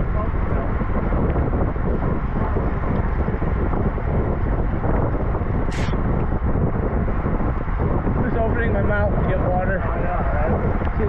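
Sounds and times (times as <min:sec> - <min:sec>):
wind rushing over microphone: 0:00.0 - 0:11.0
high-pitched squeak: 0:05.7 - 0:06.0.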